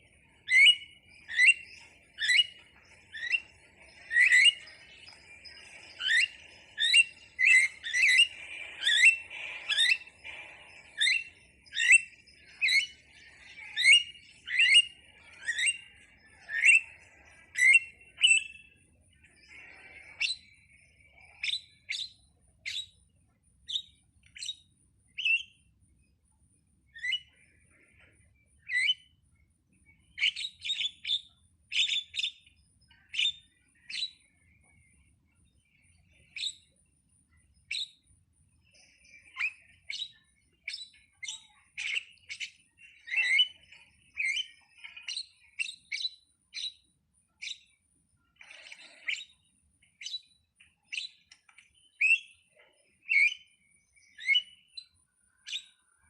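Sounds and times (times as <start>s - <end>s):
starling calling: 0.0s - 23.0s.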